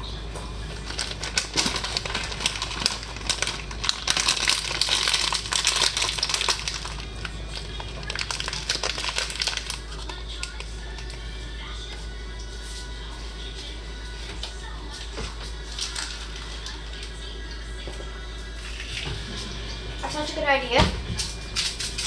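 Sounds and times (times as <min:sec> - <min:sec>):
crinkling and rustling: 0:00.4 - 0:11.2, 0:14.2 - 0:17.1.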